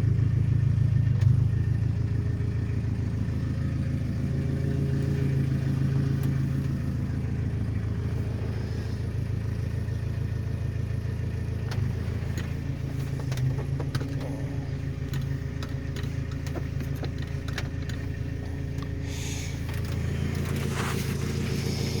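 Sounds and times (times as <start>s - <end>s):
pickup engine idling: 0.0s - 22.0s.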